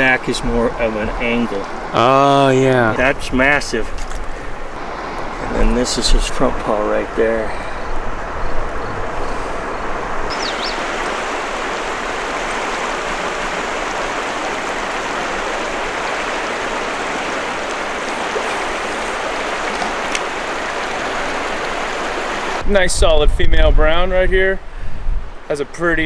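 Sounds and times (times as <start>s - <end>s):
river rushing over rocks: 9.0s - 22.6s
short high chirp: 18.3s - 20.2s.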